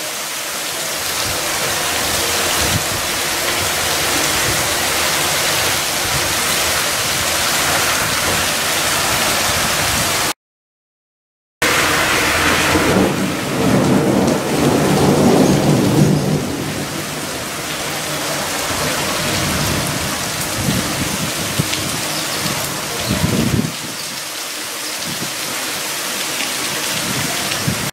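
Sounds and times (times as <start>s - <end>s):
steady rain falling: 0.0s - 10.4s, 11.6s - 27.9s.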